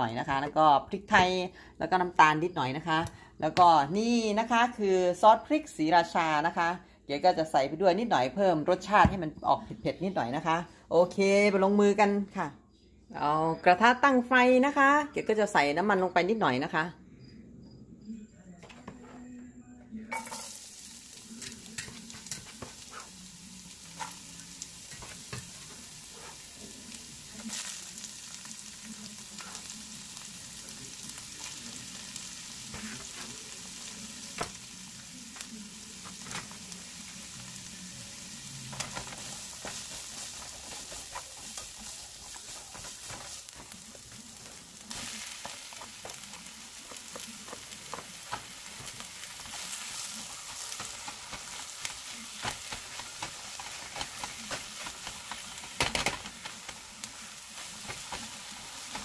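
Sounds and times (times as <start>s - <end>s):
vegetables sizzling in oil: 20.1s - 59.0s
spatula scraping and tapping pan: 21.4s - 26.6s, 38.6s - 59.0s.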